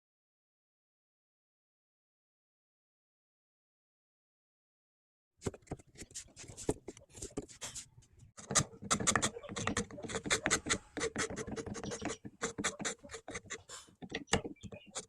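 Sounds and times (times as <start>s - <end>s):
scratching and tapping on wood: 8.4s - 15.0s.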